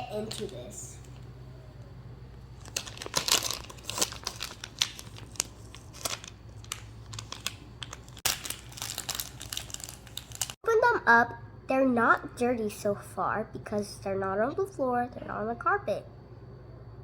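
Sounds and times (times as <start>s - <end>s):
plastic packaging crinkling and tearing: 2.6s - 10.6s.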